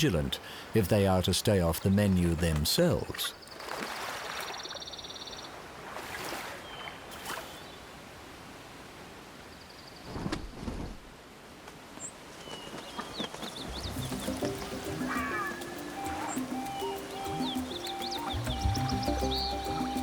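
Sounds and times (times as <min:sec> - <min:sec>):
steady background hiss: 0:10.8 - 0:20.0
bird chirps: 0:12.5 - 0:20.0
insect-like buzz: 0:13.7 - 0:20.0
music with low sustained notes: 0:13.7 - 0:20.0.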